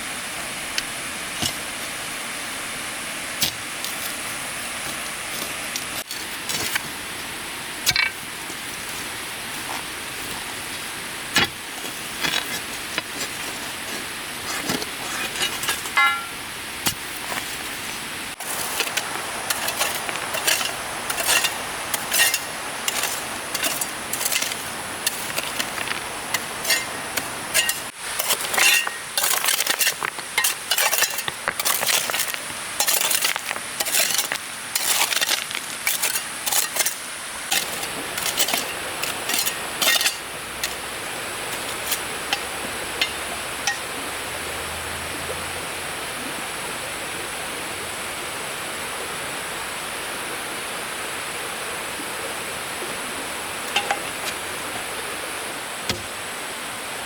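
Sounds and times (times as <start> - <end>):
steady hiss: 0.0 - 44.3
rocks knocking and clinking: 7.9 - 8.2, 14.5 - 17.5, 18.4 - 43.9, 53.7 - 54.4, 55.9 - 56.2.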